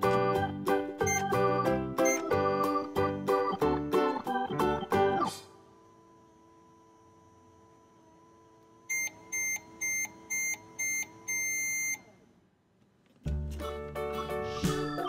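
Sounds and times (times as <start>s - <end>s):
short high toy beeps: 1.0s - 2.6s.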